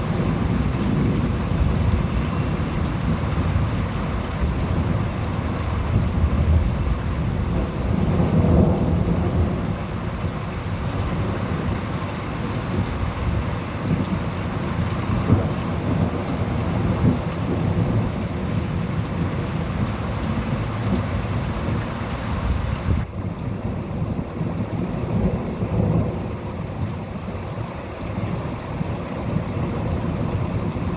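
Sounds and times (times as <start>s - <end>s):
rolling thunder: 0.0s - 21.8s
heavy rain: 0.0s - 30.9s.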